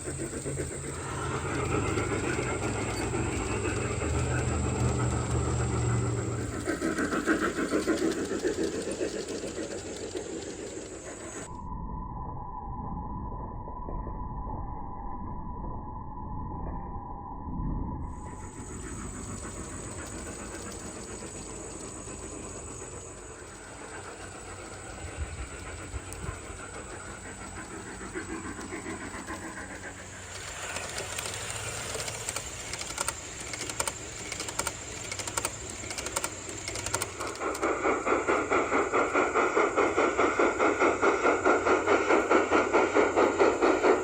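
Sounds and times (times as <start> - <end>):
wheel clicks: 0.0 - 11.5, 18.4 - 39.1
model train running on track: 0.0 - 11.6, 18.1 - 44.0.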